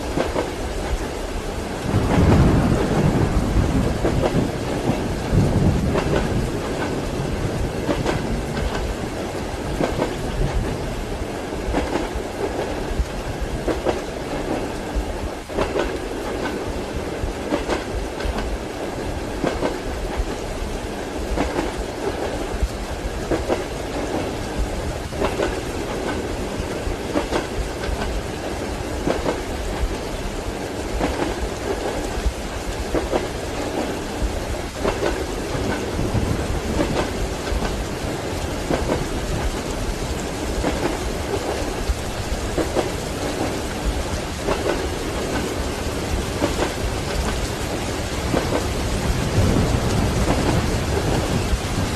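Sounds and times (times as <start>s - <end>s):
train carriage rumble: 0.0s - 51.9s
wheels clacking over rail joints: 2.0s - 10.8s, 11.6s - 12.8s, 23.3s - 30.0s, 30.9s - 51.9s.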